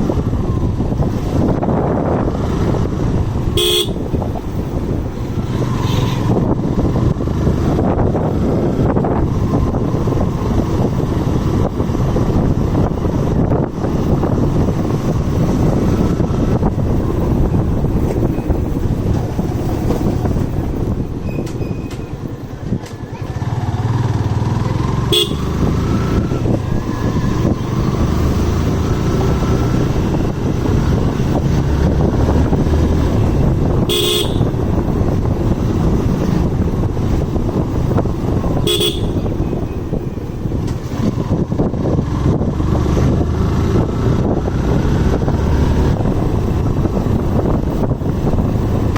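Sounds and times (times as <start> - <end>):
motorcycle engine and road noise: 0.0 - 48.9
wind buffeting microphone: 0.0 - 48.9
vehicle horn honking: 3.5 - 4.2, 25.1 - 25.7, 33.8 - 34.6, 38.6 - 39.6.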